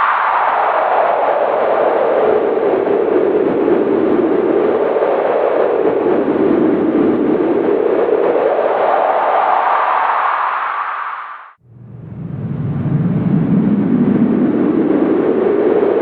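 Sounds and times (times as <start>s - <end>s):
howling wind: 0.0s - 16.0s.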